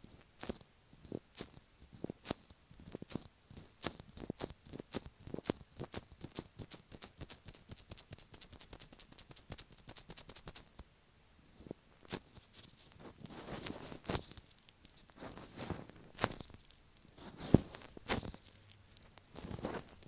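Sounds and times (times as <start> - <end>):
soft sticky rubbing: 11.5 - 20.0.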